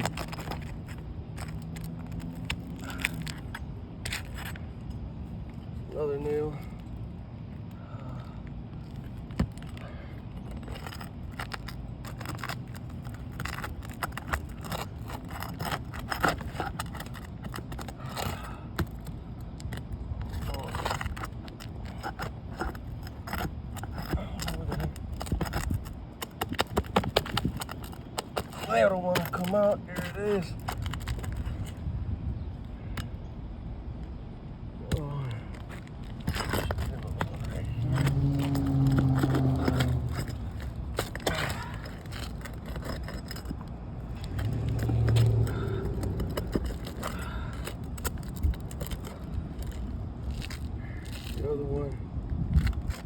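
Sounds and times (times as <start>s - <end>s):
metal tool scraping shingles: 10.6s - 19.0s, 20.3s - 31.8s, 35.6s - 51.4s
low engine hum: 28.9s - 52.2s
low rumble: 43.2s - 48.7s.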